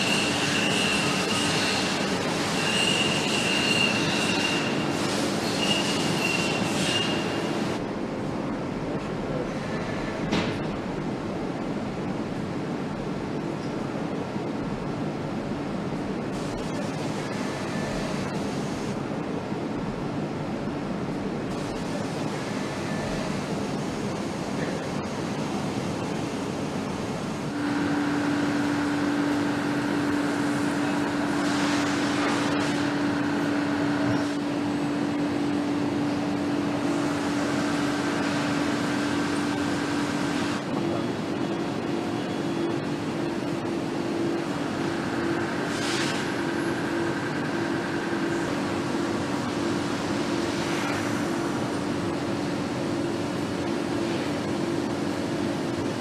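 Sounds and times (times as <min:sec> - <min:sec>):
machinery noise: 0:00.0 - 0:07.8, 0:27.3 - 0:56.0
steady hum: 0:00.0 - 0:56.0.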